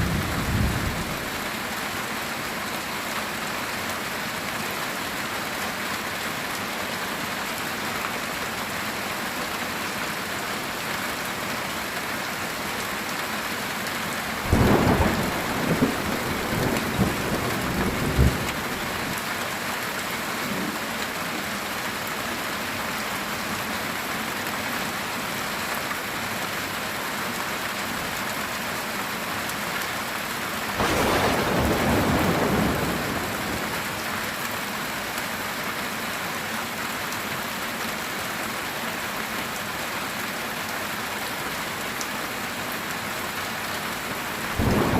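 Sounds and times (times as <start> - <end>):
heavy rain on a tin roof: 0.0 - 44.9
thunder clap and roll: 14.5 - 19.1.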